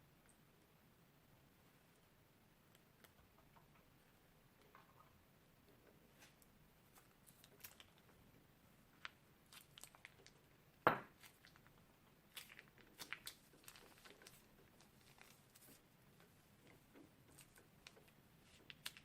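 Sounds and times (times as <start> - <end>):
crunchy slime crackling: 6.2 - 8.1, 8.9 - 10.5, 11.1 - 19.0.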